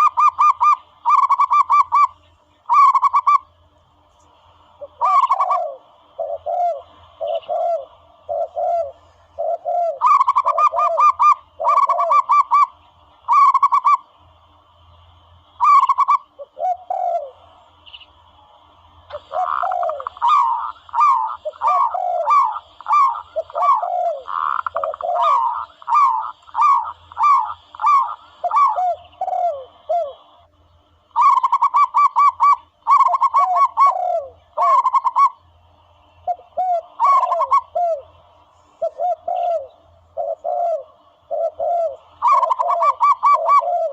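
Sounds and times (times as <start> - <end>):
recorded dove calls: 0.0 - 14.2, 15.4 - 18.1, 19.0 - 43.9.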